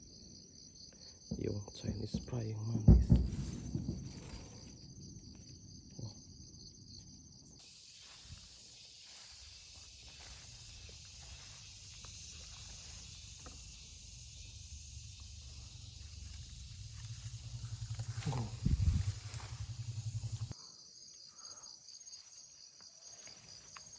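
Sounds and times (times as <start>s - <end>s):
high insect chirping: 0.0s - 23.9s
steady high hiss: 7.6s - 17.8s
low rumble: 15.4s - 20.5s.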